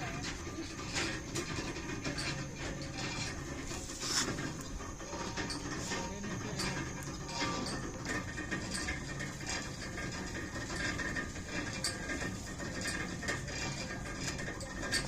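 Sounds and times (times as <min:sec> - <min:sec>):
winch gearing clanking: 0:00.0 - 0:15.0.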